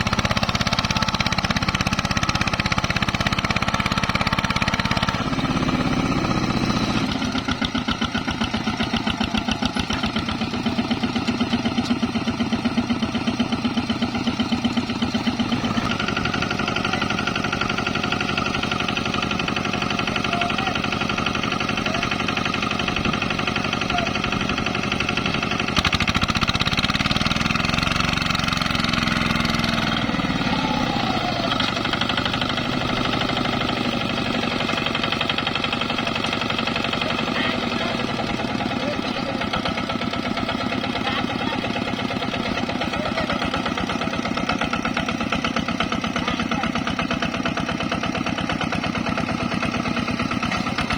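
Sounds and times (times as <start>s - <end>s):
diesel walking tractor chugging: 0.0s - 50.9s.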